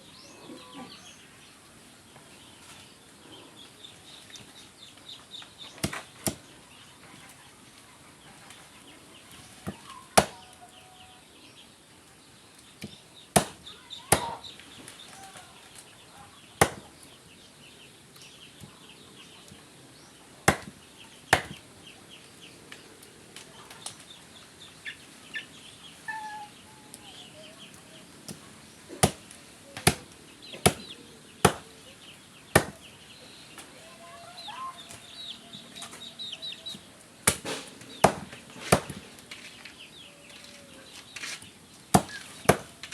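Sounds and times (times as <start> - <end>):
chickens clucking: 24.6 - 41.2
blade chopping meat: 30.6 - 31.6, 32.6 - 32.8.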